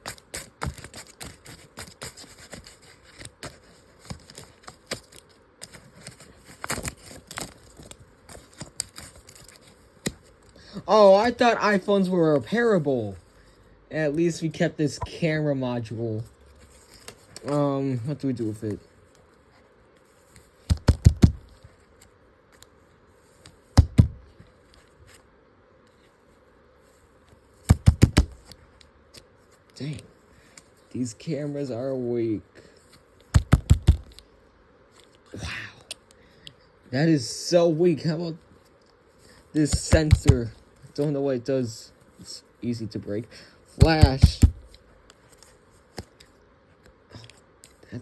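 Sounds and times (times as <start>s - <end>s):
paper rustling and tearing: 0.0s - 10.4s, 16.5s - 17.7s, 32.9s - 34.2s, 39.5s - 41.0s, 43.8s - 46.3s
paper object knocking on hard surface: 20.7s - 21.5s, 23.8s - 24.3s, 27.6s - 28.4s, 33.3s - 34.1s, 39.7s - 40.5s, 43.8s - 44.7s.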